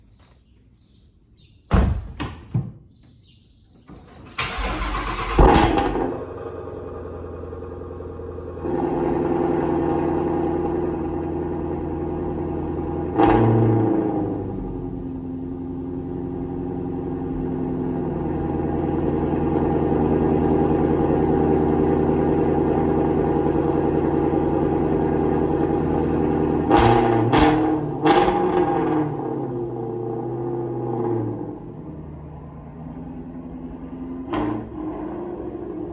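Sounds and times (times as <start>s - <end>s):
birds chirping faintly: 0.0s - 4.4s
car engine starting and idling: 3.7s - 35.9s.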